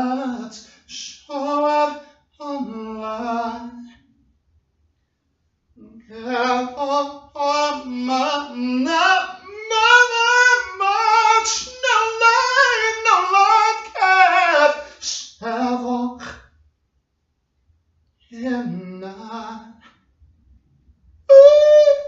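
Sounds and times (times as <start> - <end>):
person singing unaccompanied: 0.0 - 4.0, 5.8 - 16.3, 18.4 - 19.9, 21.3 - 22.0.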